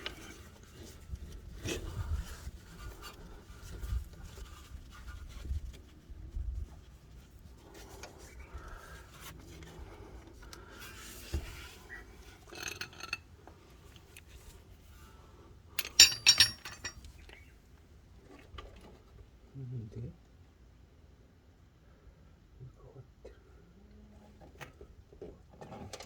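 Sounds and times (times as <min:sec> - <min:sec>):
clatter of ringing metal: 0:15.8 - 0:17.0
metal tools clicking and rubbing: 0:15.8 - 0:17.4.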